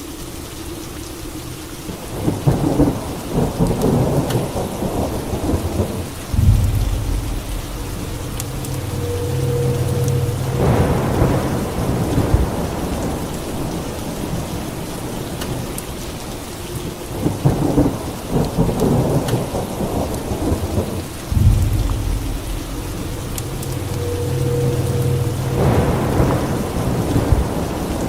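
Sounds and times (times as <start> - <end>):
steady rain: 0.0 - 28.0
rolling thunder: 2.1 - 16.1, 17.1 - 28.0.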